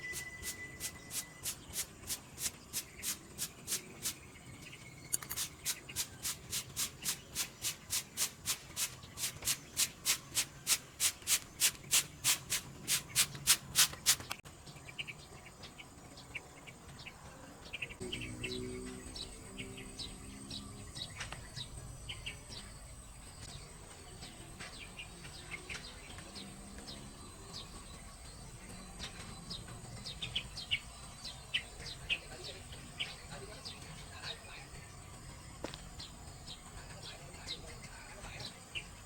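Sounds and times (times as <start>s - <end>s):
faint short chirps: 0.0s - 1.5s
rhythmic scraping strokes: 0.0s - 14.4s.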